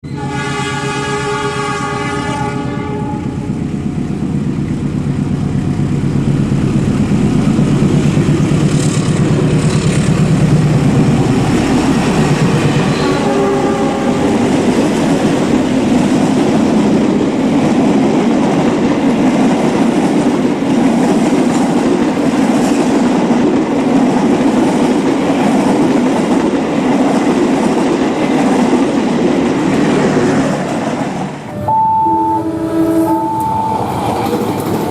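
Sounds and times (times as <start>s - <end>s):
train horn: 0.0s - 3.6s, 12.8s - 14.7s, 31.5s - 34.4s
locomotive engine rumble: 1.9s - 16.4s
rail clatter: 3.4s - 31.7s, 32.8s - 34.9s.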